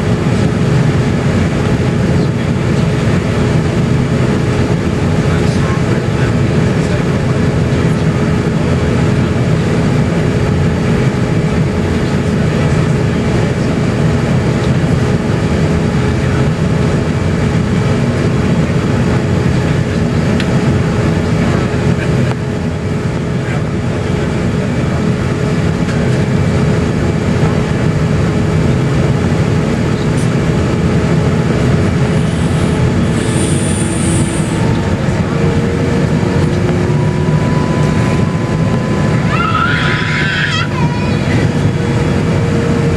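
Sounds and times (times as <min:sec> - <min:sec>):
aircraft cabin engine rumble: 0:00.0 - 0:42.9
high whine: 0:29.4 - 0:42.9.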